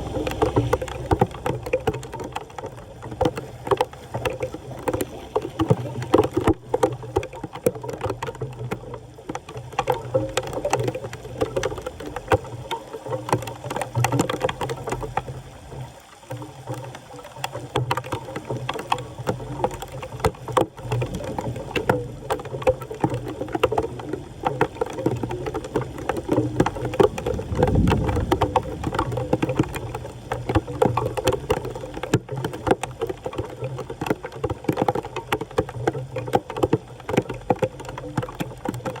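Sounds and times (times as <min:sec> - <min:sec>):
floodwater sloshing and splashing: 0:00.0 - 0:39.0.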